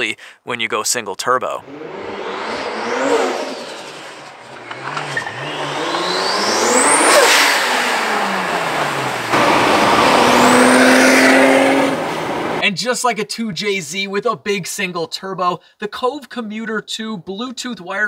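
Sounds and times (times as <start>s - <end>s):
car engine accelerating: 1.6s - 12.6s.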